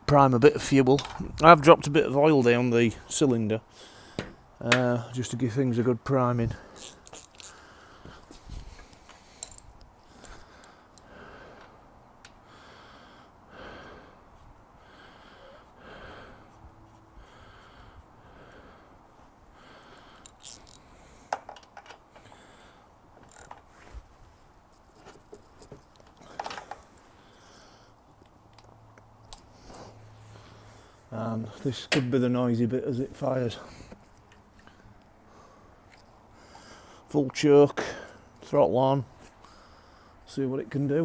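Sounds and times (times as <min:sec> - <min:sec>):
soft breathing-like puffs: 0:06.5 - 0:21.3, 0:29.4 - 0:31.7.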